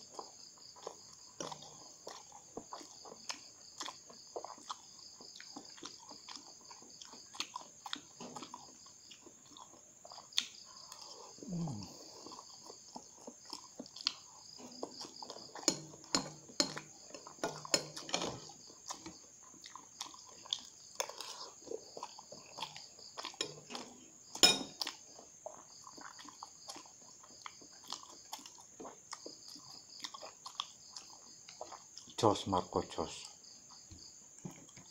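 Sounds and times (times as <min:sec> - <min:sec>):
wet chewing and mouth smacks: 0:00.0 - 0:32.2
slurping noodles: 0:10.8 - 0:12.5.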